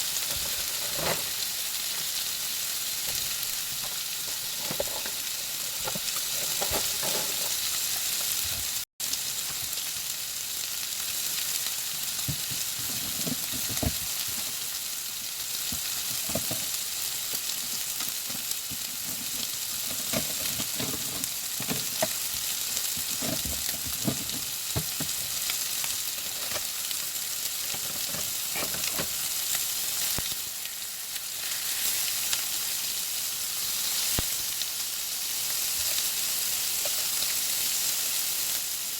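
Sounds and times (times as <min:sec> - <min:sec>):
chicken frying in a pan: 0:00.0 - 0:38.9
utensil scraping a pan: 0:00.2 - 0:01.5, 0:04.2 - 0:07.8, 0:18.2 - 0:22.2, 0:27.7 - 0:29.3.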